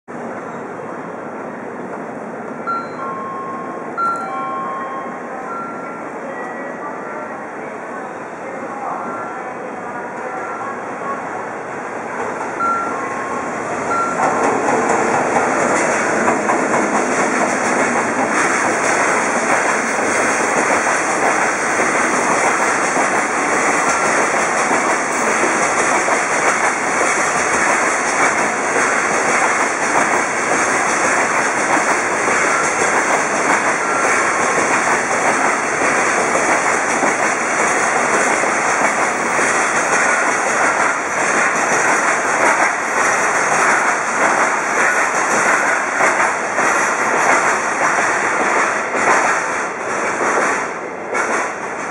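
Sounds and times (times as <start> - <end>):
freight train wheels rolling: 11.7 - 51.9.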